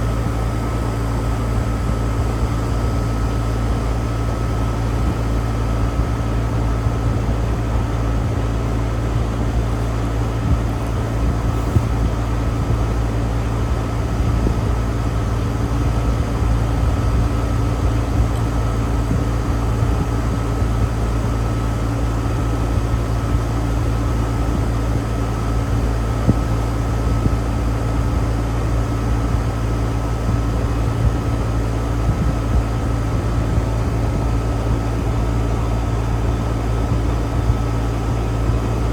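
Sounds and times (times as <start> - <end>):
air conditioner unit humming: 0.0 - 38.9.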